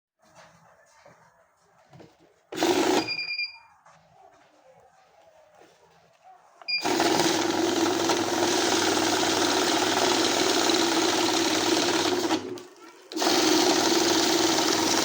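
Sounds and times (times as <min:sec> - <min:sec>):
banknote counting machine whirring: 0:02.5 - 0:03.4, 0:06.7 - 0:15.0.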